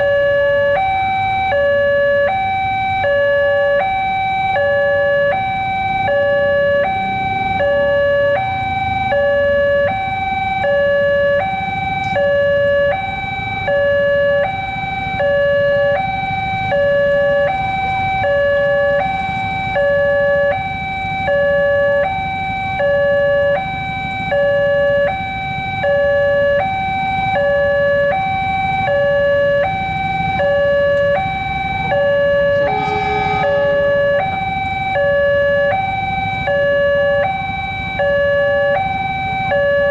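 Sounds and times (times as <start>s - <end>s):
low rumble: 31.8s - 35.0s
electronic two-tone chime: 31.9s - 35.1s.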